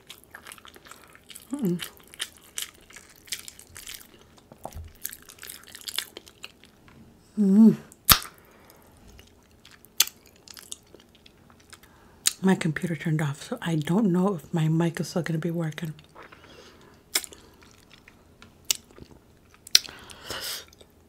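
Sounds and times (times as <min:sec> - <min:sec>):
close chewing with crunches: 0:00.0 - 0:06.8, 0:08.1 - 0:12.4, 0:16.0 - 0:21.0
person humming: 0:01.5 - 0:01.9, 0:07.3 - 0:07.9.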